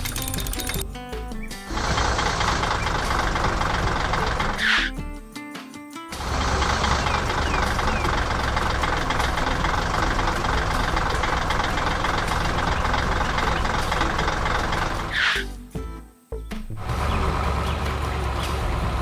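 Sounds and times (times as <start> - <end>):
construction vehicle engine rumbling: 1.4 - 4.7, 6.2 - 15.2, 16.8 - 19.0.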